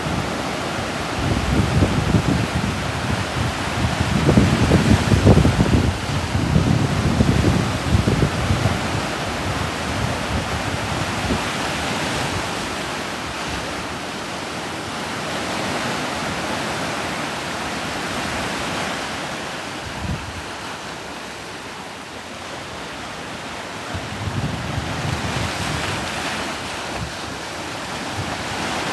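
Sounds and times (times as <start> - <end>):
wind buffeting microphone: 0.0 - 13.9, 19.8 - 20.6, 23.9 - 28.9.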